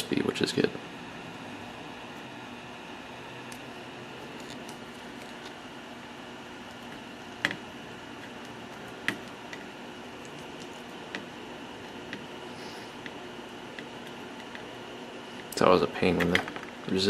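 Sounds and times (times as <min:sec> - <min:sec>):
faint fan hum: 0:00.0 - 0:17.0
hot air gun hissing: 0:12.4 - 0:13.0.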